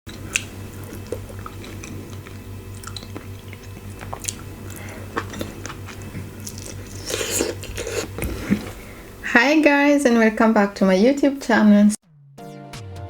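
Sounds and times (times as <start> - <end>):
close chewing: 0.1 - 9.0
low steady hum: 0.1 - 12.0
wet mouth clicks and smacks: 0.2 - 8.3.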